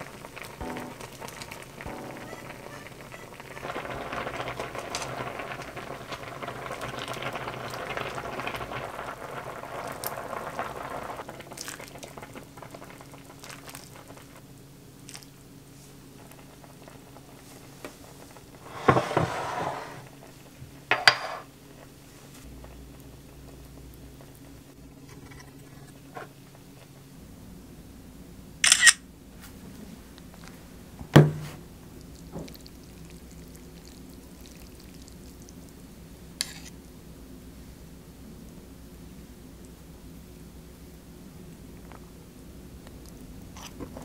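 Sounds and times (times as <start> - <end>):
soup bubbling at a boil: 0.0 - 27.0, 30.2 - 36.8, 38.8 - 44.0.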